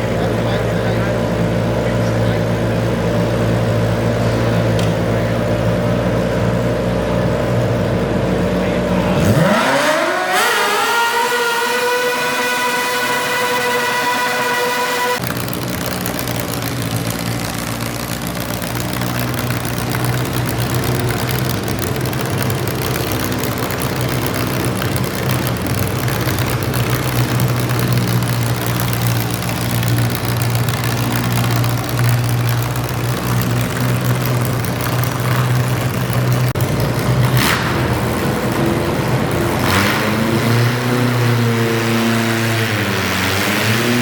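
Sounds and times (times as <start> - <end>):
garden tractor engine running: 15.0 - 44.0.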